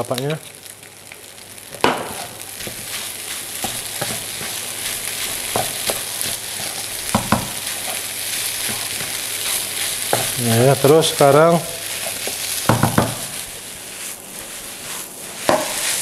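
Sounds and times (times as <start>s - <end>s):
food sizzling in a wok: 0.0s - 16.0s
spatula knocking and scraping pan: 1.8s - 10.4s, 11.9s - 13.5s, 14.4s - 16.0s.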